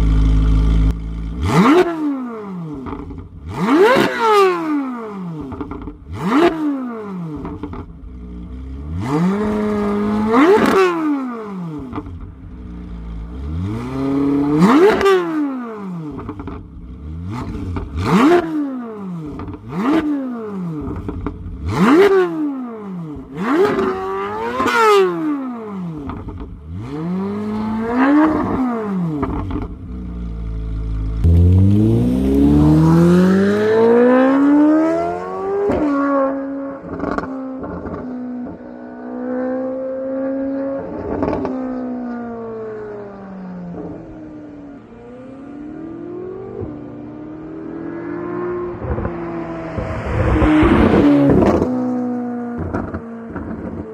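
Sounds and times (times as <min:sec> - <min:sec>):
sports car engine revving: 0:00.0 - 0:53.9.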